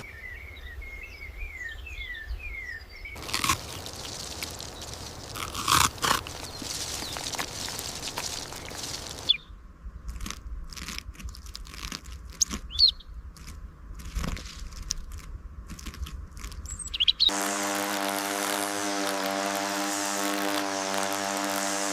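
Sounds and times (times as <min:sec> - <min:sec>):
bird chirps: 0:00.0 - 0:05.1, 0:06.3 - 0:09.6, 0:12.4 - 0:13.2, 0:16.6 - 0:17.4
steady hiss: 0:03.2 - 0:09.3
crunching and clicking: 0:03.2 - 0:09.4, 0:10.0 - 0:21.9.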